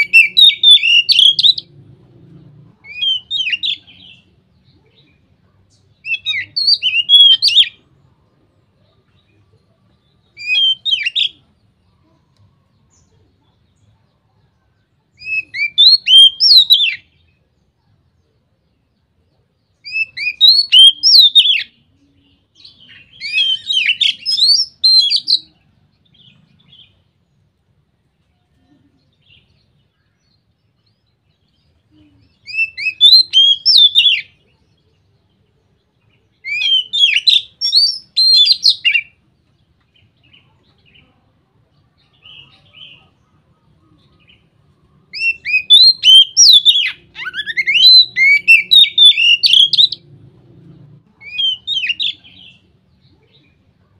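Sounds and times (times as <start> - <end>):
bird singing whistled phrases: 0.0 - 1.7, 2.9 - 4.3, 5.9 - 7.8, 10.4 - 11.4, 15.2 - 17.2, 19.8 - 21.8, 22.6 - 25.5, 32.3 - 34.4, 36.4 - 39.2, 45.1 - 50.0, 51.2 - 52.6.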